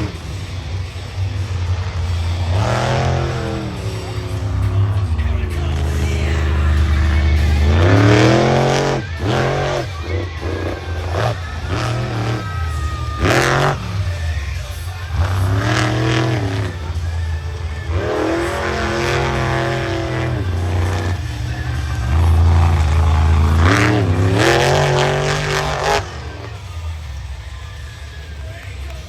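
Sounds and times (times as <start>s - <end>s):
truck engine revving hard: 0.0s - 29.0s.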